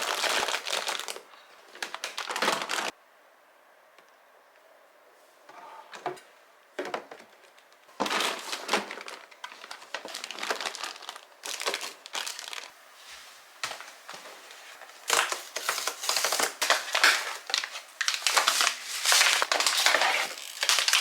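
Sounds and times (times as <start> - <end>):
plastic packaging crinkling: 0.0 - 3.0, 6.8 - 12.7, 14.8 - 21.0.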